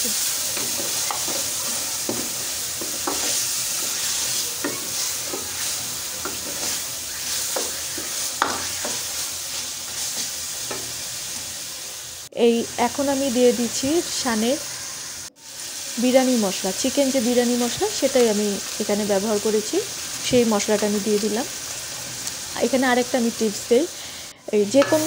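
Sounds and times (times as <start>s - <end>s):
vegetables sizzling in oil: 0.0s - 25.0s
spatula scraping pot: 0.4s - 9.3s.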